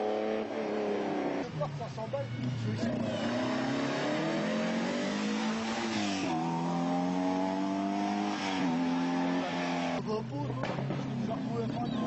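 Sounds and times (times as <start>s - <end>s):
rally car engine accelerating: 2.4s - 11.7s.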